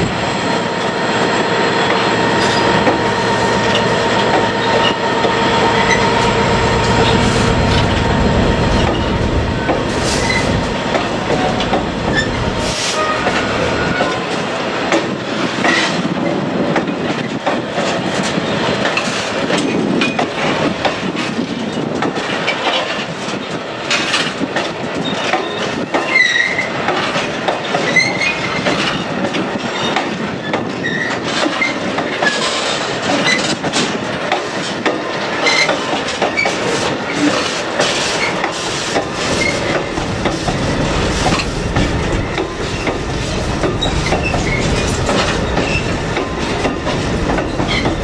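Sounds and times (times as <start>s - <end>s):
freight wagons clattering over rails: 0.0s - 48.0s
high wheel squeals: 2.2s - 7.6s, 8.8s - 14.3s, 39.2s - 39.8s.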